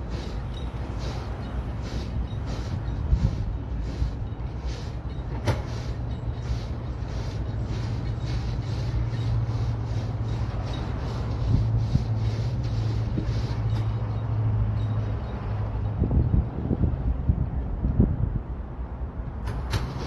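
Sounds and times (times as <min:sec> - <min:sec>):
large diesel engine running: 0:00.0 - 0:16.0.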